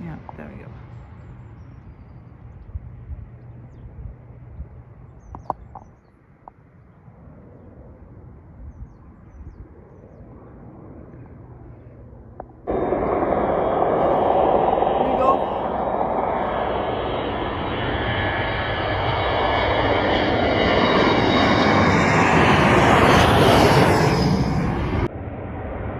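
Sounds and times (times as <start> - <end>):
distant airplane engine hum: 0.0 - 25.9
loud aircraft engine noise: 0.0 - 25.9
bird chirps: 5.1 - 6.2.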